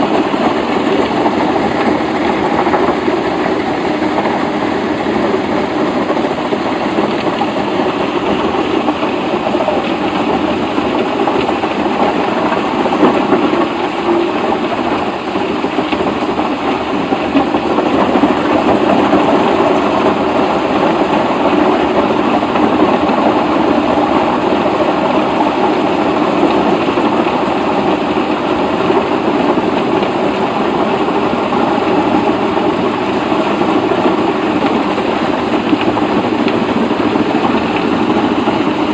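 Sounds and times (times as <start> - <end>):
heavy machinery engine drone: 0.0 - 38.9.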